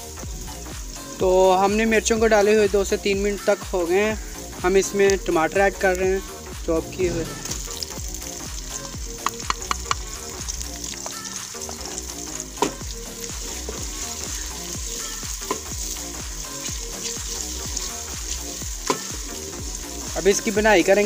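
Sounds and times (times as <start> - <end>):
vegetables sizzling in hot fat: 0.0 - 21.0
wooden spoon clacking on pot: 9.2 - 10.1.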